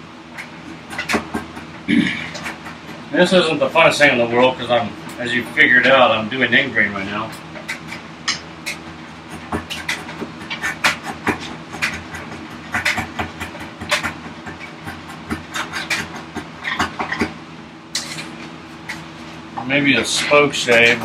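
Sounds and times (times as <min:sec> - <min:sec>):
chisel scraping wood: 0:07.6 - 0:17.4, 0:20.0 - 0:21.0.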